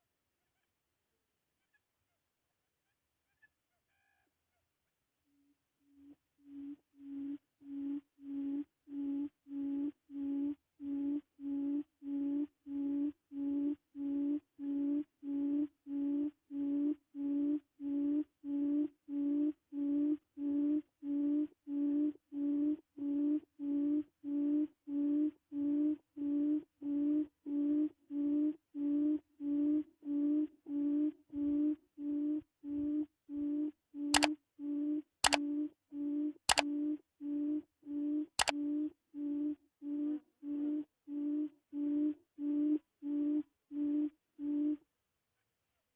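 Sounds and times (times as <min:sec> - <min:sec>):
low hooting quail call: 0:03.2 - 0:04.7, 0:05.4 - 0:44.8.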